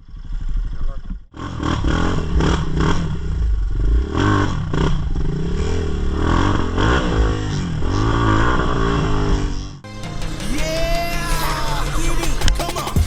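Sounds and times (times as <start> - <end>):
dirt bike engine revving: 0.0 - 9.9.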